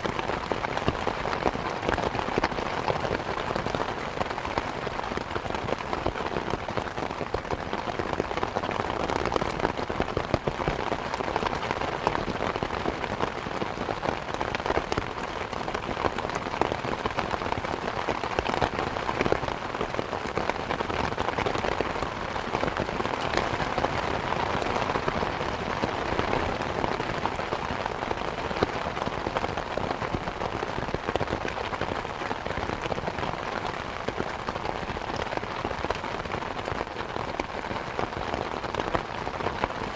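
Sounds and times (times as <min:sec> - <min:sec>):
rain on ground and foliage: 0:00.0 - 0:39.9.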